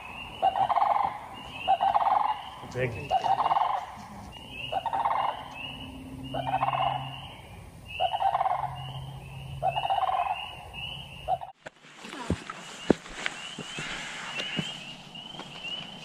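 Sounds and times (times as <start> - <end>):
frogs croaking: 0.0 - 11.6.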